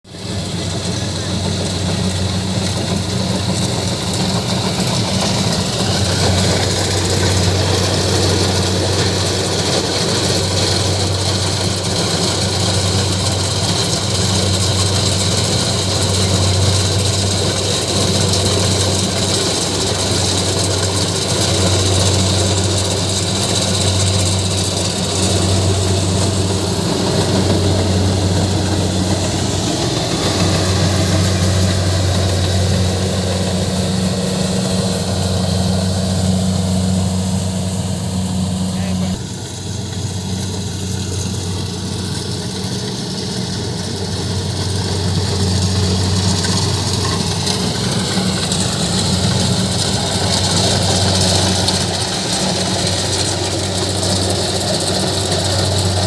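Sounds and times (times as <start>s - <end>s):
combine harvester engine hum: 0.1s - 56.0s
steady high whine: 0.1s - 56.0s.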